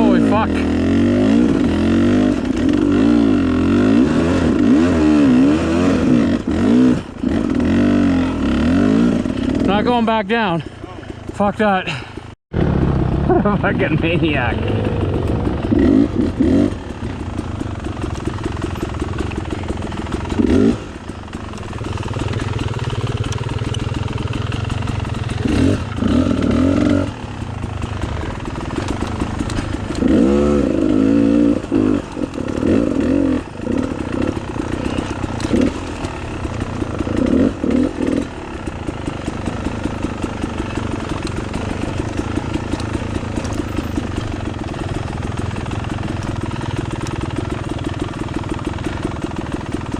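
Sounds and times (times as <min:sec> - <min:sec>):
dirt bike engine revving: 0:00.0 - 0:10.6, 0:11.3 - 0:49.9.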